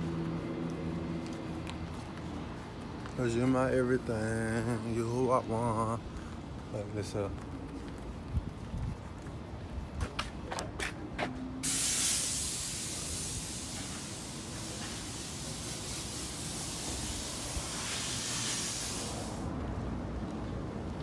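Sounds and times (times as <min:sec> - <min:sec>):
spraying hiss: 0:11.6 - 0:19.5.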